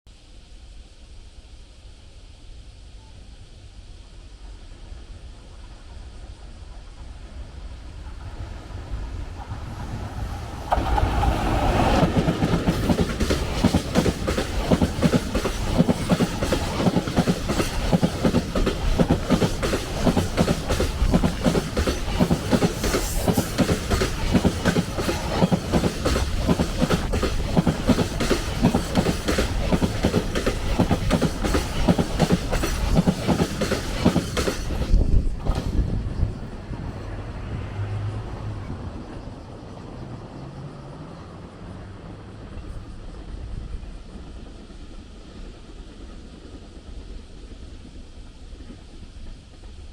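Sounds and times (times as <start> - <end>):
freight train passing: 2.8 - 49.9
train wheels clattering over joints: 9.3 - 36.5.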